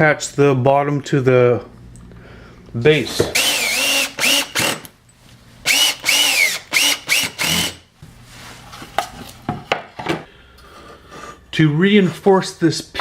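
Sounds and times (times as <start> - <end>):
power drill driving screws: 3.2 - 4.9, 5.6 - 7.8.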